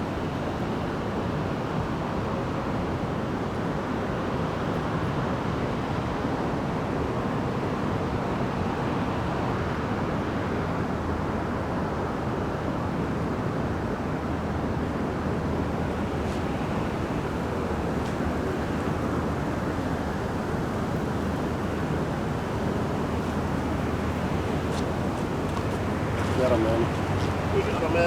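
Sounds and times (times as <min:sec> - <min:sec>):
river water rushing: 0:14.6 - 0:28.0.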